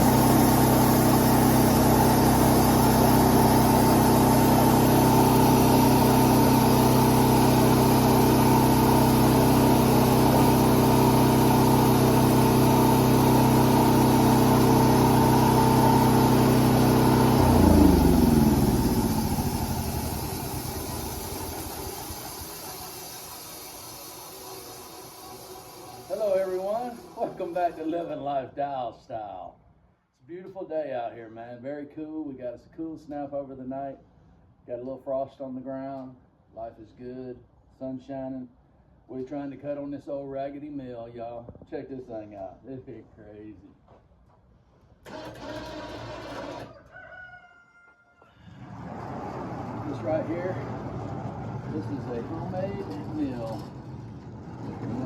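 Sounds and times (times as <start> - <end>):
sawmill coasting whir: 0.0 - 28.2, 48.5 - 55.0
sawmill engine running: 0.0 - 28.2, 45.1 - 46.7, 48.7 - 55.0.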